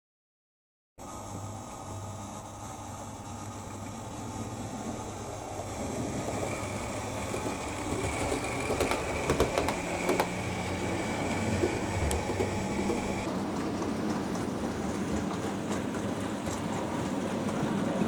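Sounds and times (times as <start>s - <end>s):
model train whine: 1.0s - 14.4s
clicks over rail joints: 6.4s - 13.3s.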